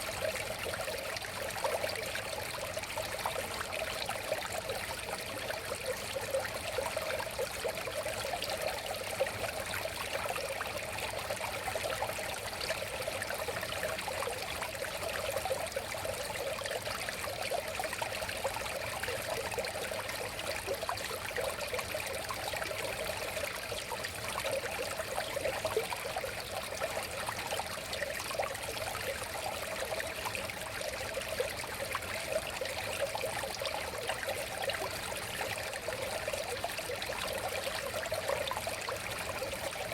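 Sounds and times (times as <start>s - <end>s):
river water babbling over stones: 17.1s - 39.9s.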